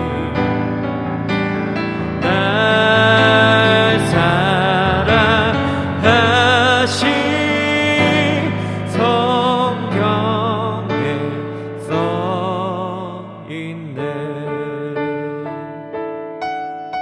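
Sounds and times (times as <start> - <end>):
piano accompaniment: 0.0 - 17.0
person singing long notes: 2.0 - 16.0.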